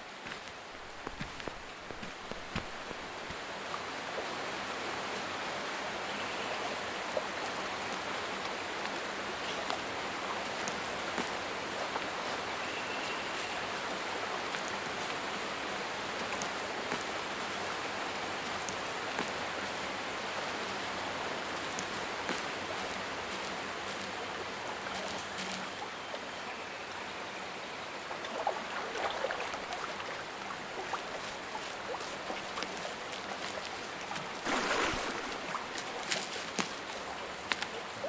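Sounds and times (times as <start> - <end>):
running water rushing: 0.0 - 5.9, 28.0 - 38.0
small clicks and splashes: 7.9 - 12.1, 16.1 - 17.2, 18.4 - 19.7, 21.6 - 24.2, 28.3 - 38.0.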